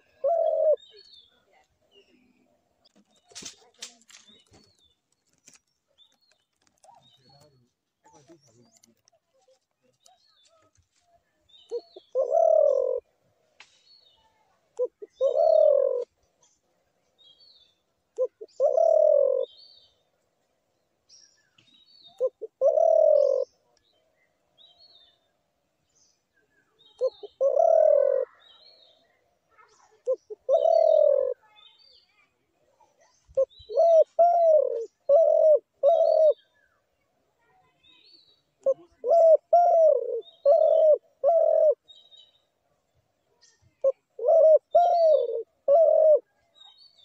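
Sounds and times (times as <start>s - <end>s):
dove cooing: 0.0s - 1.0s, 11.7s - 13.1s, 14.8s - 16.1s, 18.2s - 19.6s, 22.0s - 23.6s, 26.9s - 28.6s, 29.9s - 31.4s, 33.3s - 36.5s, 38.6s - 41.9s, 43.7s - 46.4s
small birds chirping: 0.0s - 47.0s.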